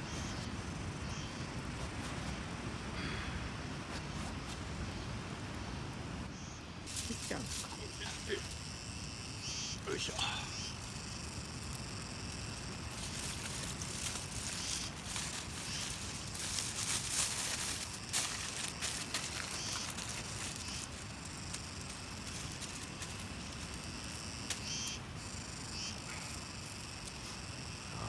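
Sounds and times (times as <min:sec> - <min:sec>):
insects chirping: 0:00.0 - 0:28.0
sharp crackles and clicks: 0:06.9 - 0:27.4.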